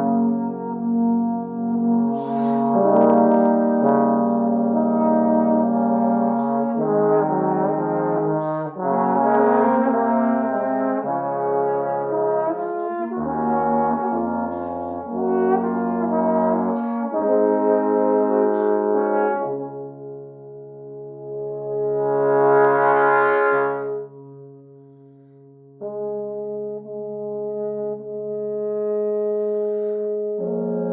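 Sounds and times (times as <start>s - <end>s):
deep bass line: 0.0s - 18.8s
trombone chords: 0.0s - 24.7s, 25.8s - 30.9s.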